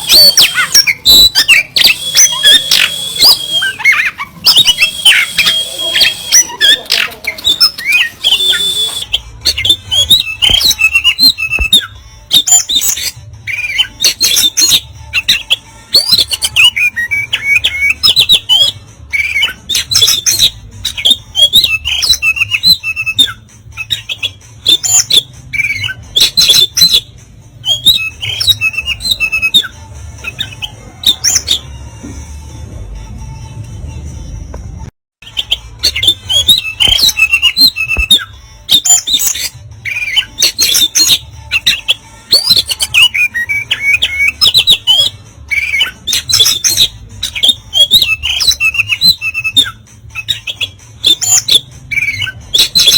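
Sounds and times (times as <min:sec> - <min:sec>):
bird singing harsh notes and whistles: 0:00.0 - 0:31.9, 0:35.2 - 0:52.9.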